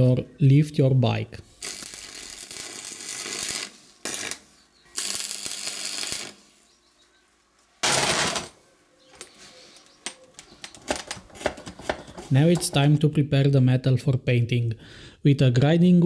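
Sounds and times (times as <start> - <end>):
welding arc crackling and hissing: 1.4 - 6.8, 7.8 - 8.6.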